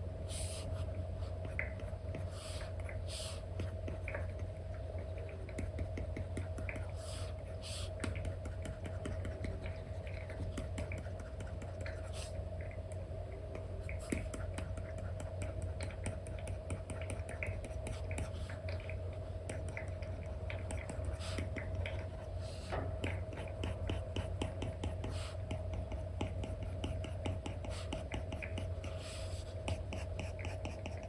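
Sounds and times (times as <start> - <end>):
steady low hum: 0.0 - 31.0
stylus tapping and scratching: 3.6 - 7.0, 7.9 - 12.2, 13.6 - 22.4, 23.0 - 31.0.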